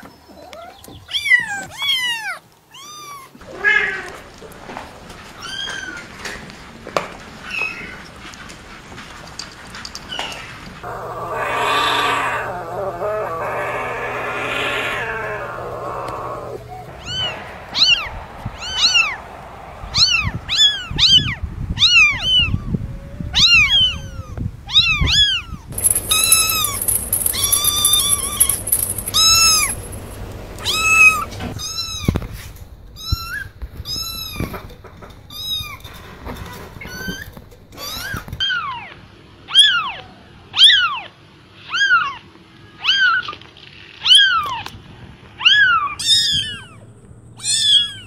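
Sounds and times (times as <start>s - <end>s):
kittens mewing: 10.8s - 17.3s.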